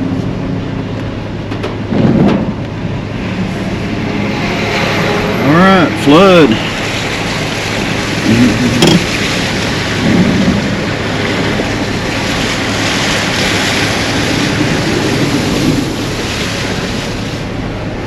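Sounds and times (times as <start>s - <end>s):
floodwater rushing: 2.7s - 18.0s
wind buffeting microphone: 6.7s - 17.3s.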